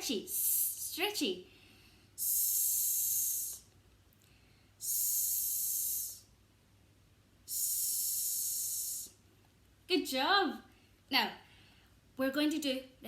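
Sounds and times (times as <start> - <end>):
woman hissing a long s: 0.0 - 1.0, 2.1 - 3.7, 4.8 - 6.4, 7.4 - 9.2.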